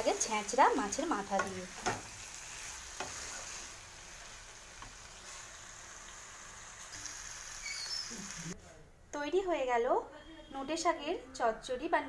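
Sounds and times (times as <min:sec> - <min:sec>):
greens sizzling in a pan: 0:00.0 - 0:08.6.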